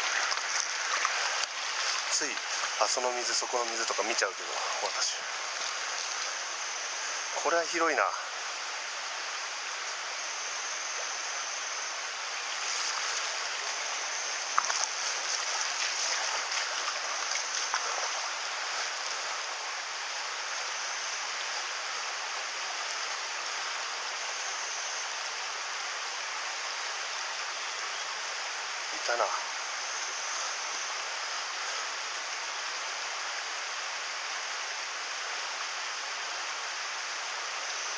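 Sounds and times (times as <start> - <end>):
stream water running over rocks: 0.0 - 37.9
small sharp knocks or splashes: 14.5 - 18.3.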